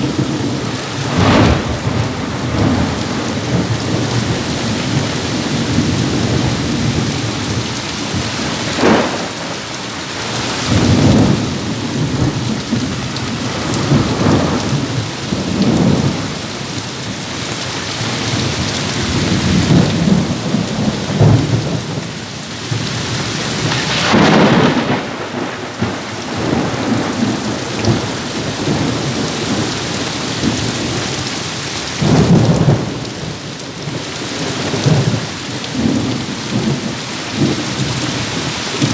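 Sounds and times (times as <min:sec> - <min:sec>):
strong wind gusting: 0:00.0 - 0:16.7, 0:23.0 - 0:31.2
heavy rain pouring: 0:00.0 - 0:38.9.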